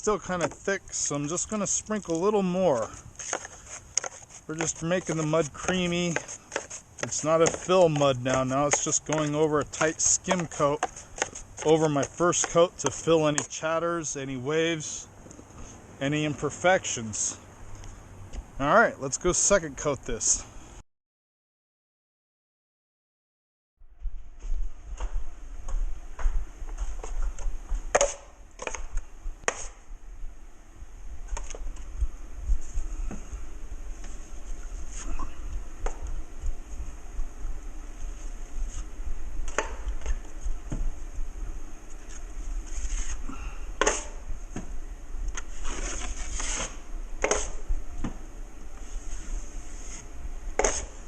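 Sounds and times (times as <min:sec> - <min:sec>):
knife scraping joint compound: 0:00.2 - 0:13.6, 0:45.4 - 0:47.6, 0:49.8 - 0:51.0.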